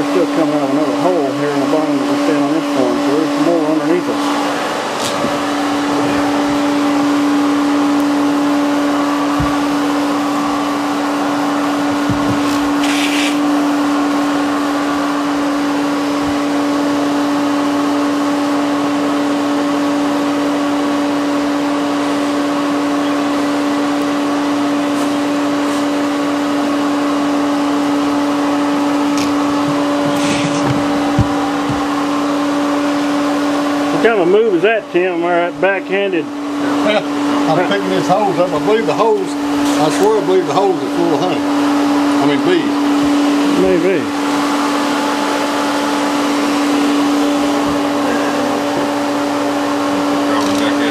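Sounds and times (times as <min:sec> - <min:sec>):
vacuum motor humming: 0:00.0 - 0:50.9
bursts of hiss: 0:12.8 - 0:13.5.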